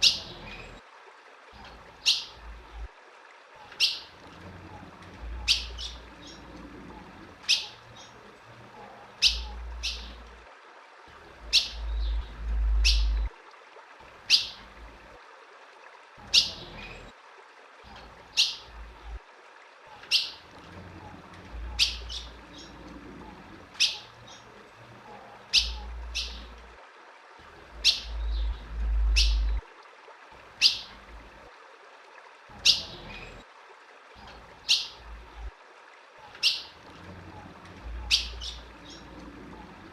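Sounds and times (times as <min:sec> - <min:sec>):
bird chirping: 0:03.8 - 0:04.1, 0:05.4 - 0:08.2, 0:09.2 - 0:10.2, 0:11.5 - 0:13.3, 0:21.7 - 0:22.8, 0:23.8 - 0:24.5, 0:25.5 - 0:26.6, 0:27.8 - 0:29.6, 0:37.9 - 0:39.2
low rumbling: 0:11.3 - 0:13.4, 0:27.5 - 0:29.7.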